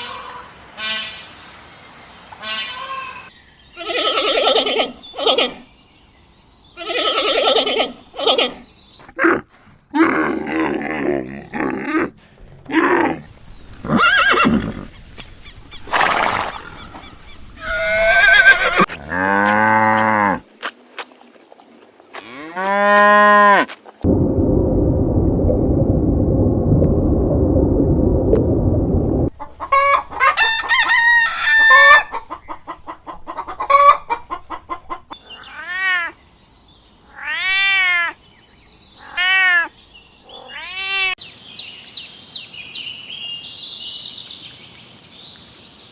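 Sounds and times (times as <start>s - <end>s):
chicken calls: 12.8s - 19.0s, 29.4s - 36.2s
steady noise: 24.1s - 29.3s
rooster crowing: 29.7s - 32.1s.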